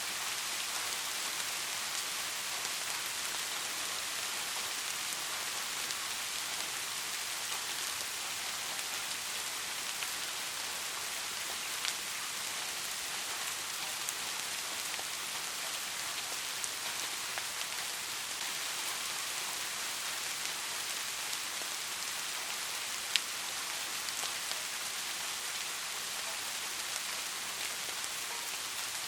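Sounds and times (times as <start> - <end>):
steady rainfall: 0.0 - 29.0.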